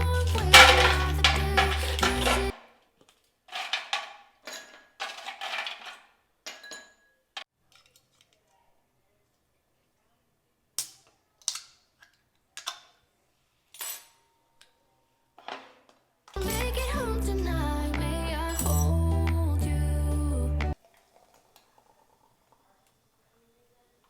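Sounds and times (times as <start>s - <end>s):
cutlery clinking against a dish: 0.4s - 2.5s.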